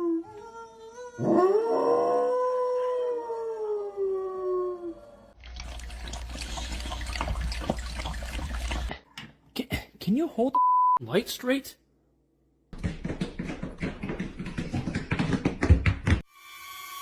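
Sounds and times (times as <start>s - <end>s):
dog howling: 0.0s - 5.3s.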